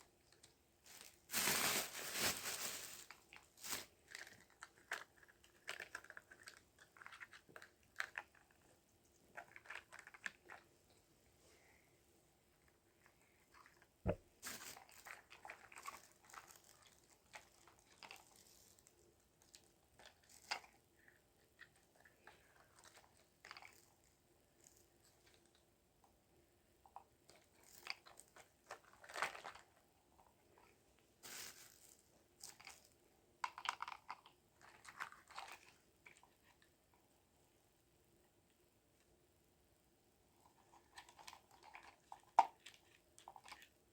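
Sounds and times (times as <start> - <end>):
packaging crinkling: 0.9 - 8.5, 14.4 - 20.8, 31.2 - 32.8
plastic toys clicking and tapping: 33.4 - 35.7.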